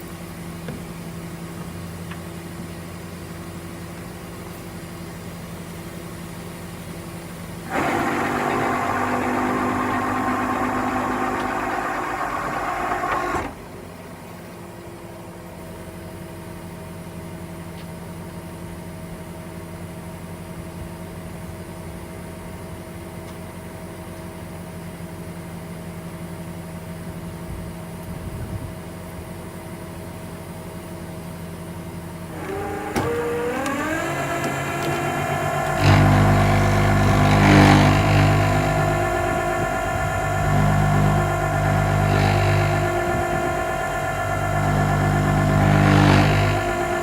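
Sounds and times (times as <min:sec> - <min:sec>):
truck engine running and revving: 0:07.7 - 0:13.6, 0:32.3 - 0:47.0.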